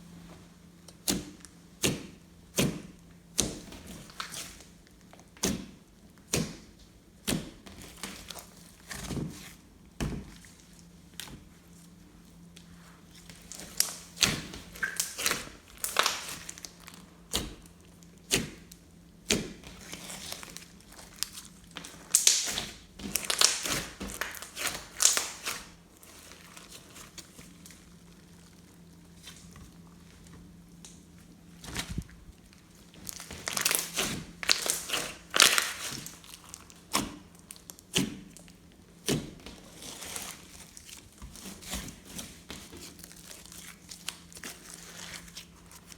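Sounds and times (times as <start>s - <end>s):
slime squished by hand: 12.6s - 45.9s.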